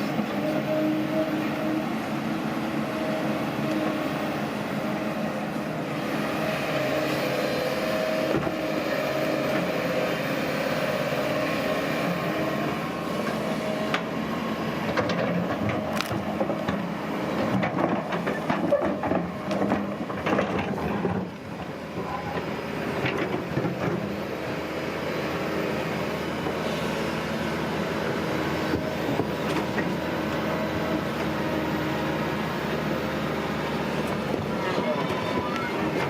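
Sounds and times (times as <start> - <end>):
tracked earthmoving machine running: 0.0 - 36.0.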